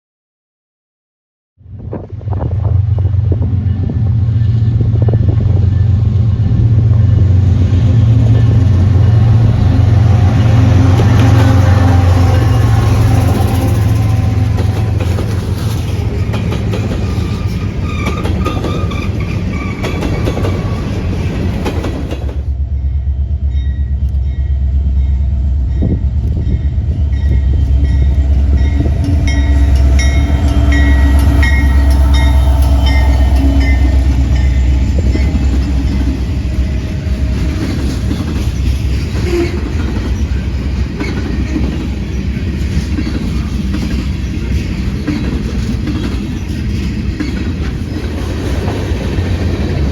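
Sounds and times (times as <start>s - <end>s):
train rumbling by: 1.6s - 49.9s
railcars clattering: 1.9s - 49.9s
short high ringing tone: 22.8s - 37.2s.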